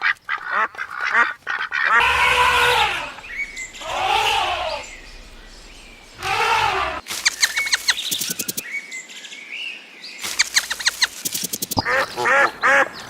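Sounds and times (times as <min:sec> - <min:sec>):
duck quacks: 0:00.0 - 0:05.3, 0:11.8 - 0:13.0
birds chirping: 0:00.0 - 0:13.0.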